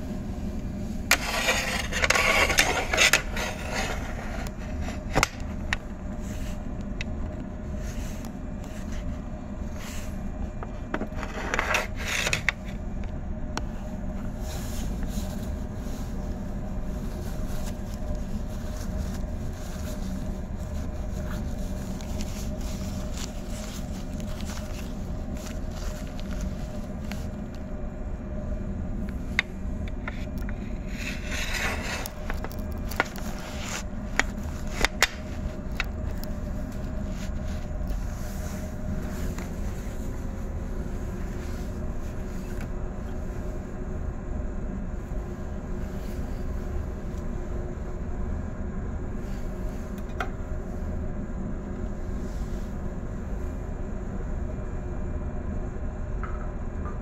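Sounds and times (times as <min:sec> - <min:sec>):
faint steady whine: 0:00.0 - 0:57.0
train equipment low hum: 0:00.0 - 0:57.0
scraping noises: 0:00.8 - 0:05.5, 0:10.8 - 0:12.8, 0:29.9 - 0:42.7.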